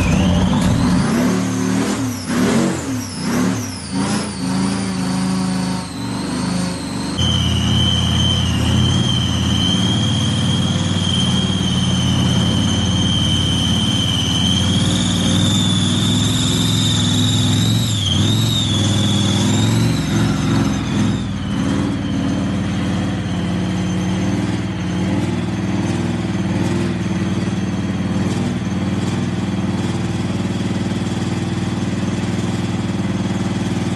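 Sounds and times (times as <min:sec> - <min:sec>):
high whistling whine: 0:00.0 - 0:33.9
truck engine running: 0:00.0 - 0:33.9.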